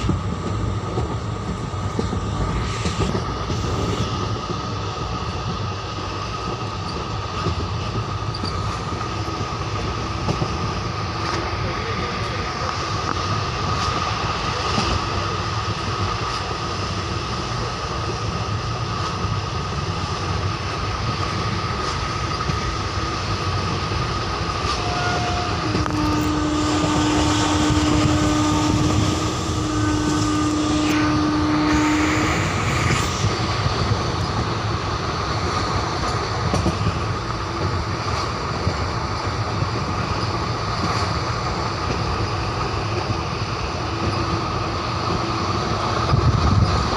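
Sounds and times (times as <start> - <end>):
train wheels rumbling and rattling: 0.0 - 46.9
long low train horn: 24.2 - 34.0.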